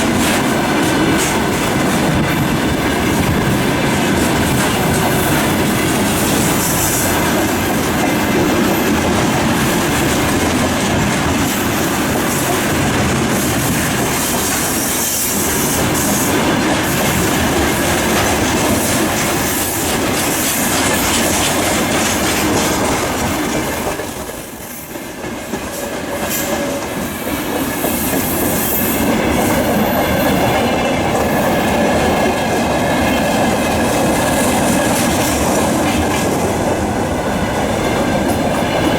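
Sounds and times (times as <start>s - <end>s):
train wagons rumbling: 0.0s - 38.9s
wheels clattering over rail joints: 15.9s - 24.4s.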